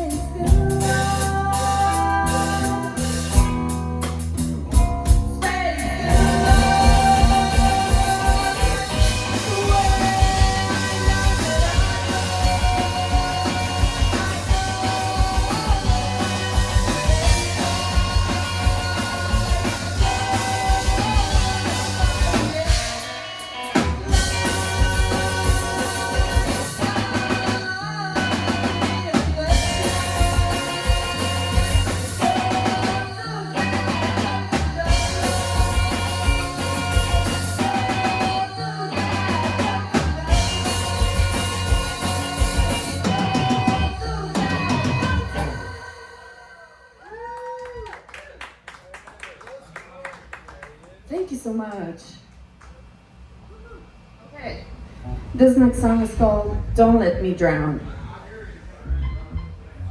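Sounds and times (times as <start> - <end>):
person singing: 0.0 - 3.4, 5.4 - 47.2
drum kit: 0.0 - 45.8, 52.4 - 59.9
guitar: 0.0 - 46.4, 55.0 - 59.9.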